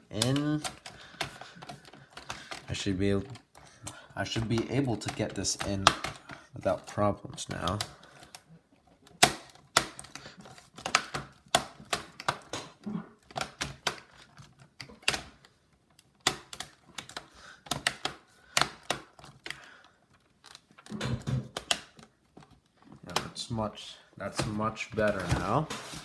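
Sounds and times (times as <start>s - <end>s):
plastic laptop parts clicking: 0.0s - 23.5s.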